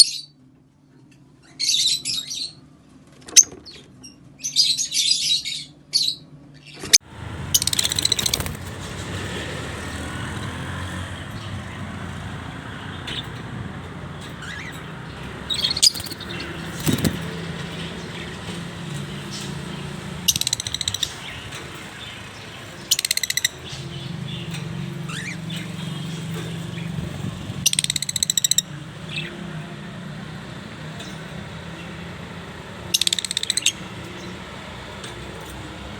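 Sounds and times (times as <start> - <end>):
lovebirds chattering: 7.0 - 29.5, 30.3 - 35.9.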